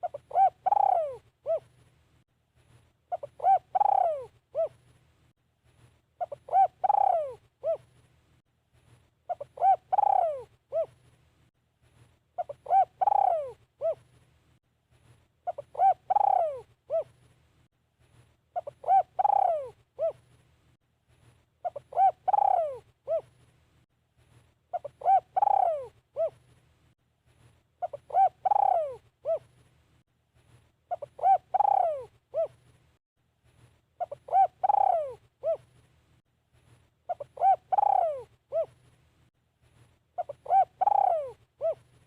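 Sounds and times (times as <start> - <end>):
dove cooing: 0.0 - 1.7, 3.1 - 4.8, 6.2 - 7.9, 9.3 - 11.0, 12.4 - 14.1, 15.4 - 17.2, 18.6 - 20.2, 21.6 - 23.3, 24.7 - 26.4, 27.8 - 29.5, 30.9 - 32.6, 34.0 - 35.7, 37.1 - 38.8, 40.2 - 41.9.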